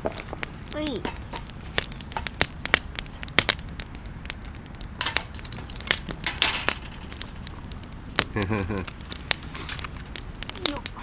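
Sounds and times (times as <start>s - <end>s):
campfire crackling and popping: 0.0s - 11.0s
fire hiss: 0.0s - 11.0s.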